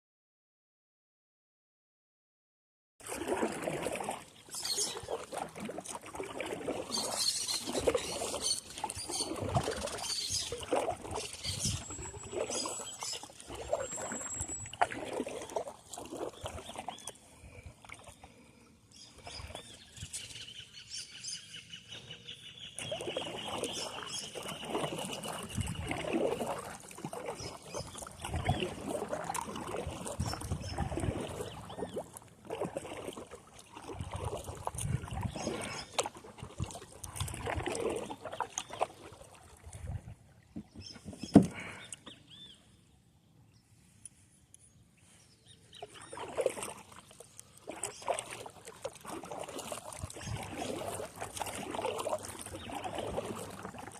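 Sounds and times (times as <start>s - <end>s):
water swishing: 3.0s - 20.6s, 22.8s - 42.5s, 45.5s - 53.9s
birds chirping: 6.9s - 10.6s, 11.2s - 13.3s, 18.9s - 25.8s
knocks on boat: 40.5s - 41.6s.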